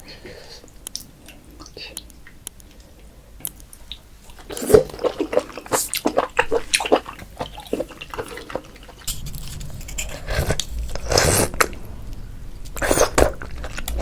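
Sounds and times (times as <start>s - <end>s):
person slurping and smacking: 4.4s - 9.1s.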